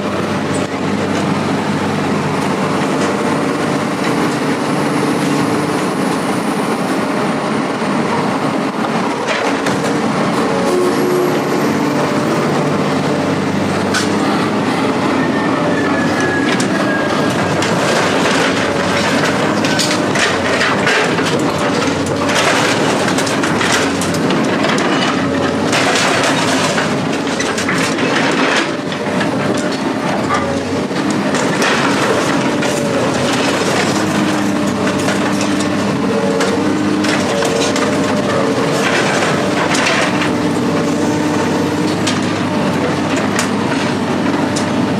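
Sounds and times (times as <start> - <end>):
heavy machine engine running: 0.0 - 44.9
metal clanking and scraping: 15.8 - 44.7.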